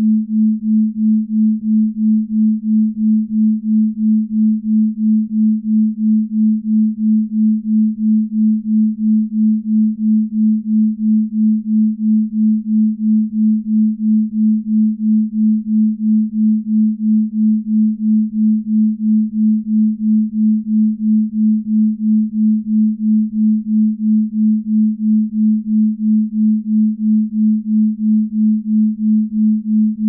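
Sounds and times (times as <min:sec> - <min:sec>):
pulsing low sine tone: 0:00.0 - 0:30.0.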